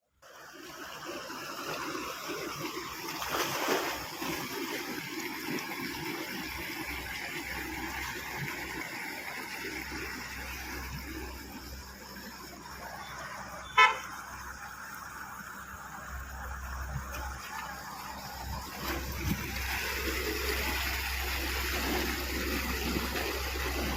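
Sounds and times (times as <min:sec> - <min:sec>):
water running and splashing: 0:00.2 - 0:23.9
short horn beep: 0:13.6 - 0:14.1.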